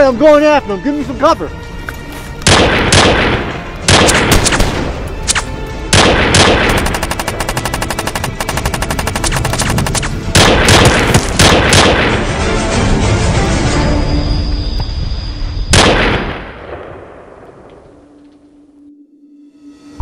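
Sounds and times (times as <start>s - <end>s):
automatic rifle fire: 2.5s - 4.9s, 5.9s - 12.1s, 15.8s - 16.6s.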